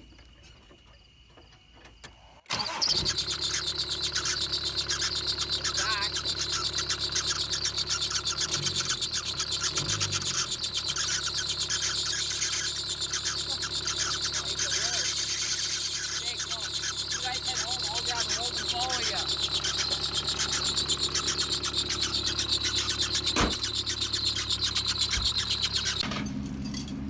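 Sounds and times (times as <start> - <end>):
diesel engine starting and running: 2.5 - 27.0.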